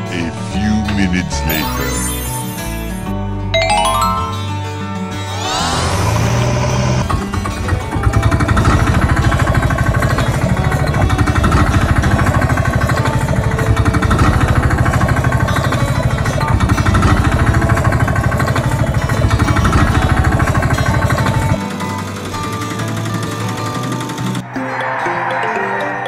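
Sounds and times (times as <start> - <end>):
road-roller engine chugging: 7.1 - 24.4.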